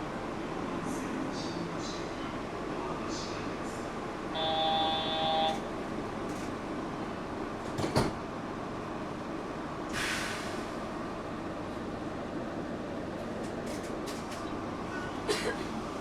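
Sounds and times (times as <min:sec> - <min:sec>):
train hum: 0:00.0 - 0:16.0
train doors clacking shut: 0:07.6 - 0:08.2
air hiss: 0:09.9 - 0:10.7.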